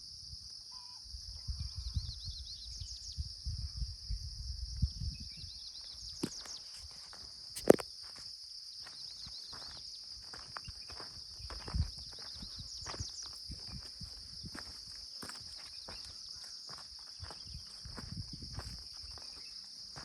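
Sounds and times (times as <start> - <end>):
footsteps on path: 6.2 - 20.0.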